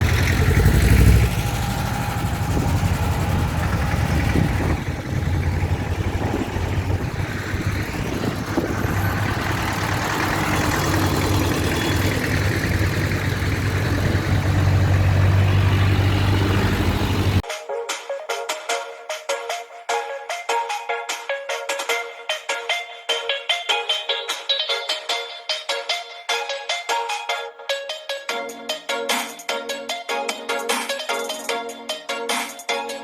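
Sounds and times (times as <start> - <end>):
tractor engines running: 0.0 - 17.4.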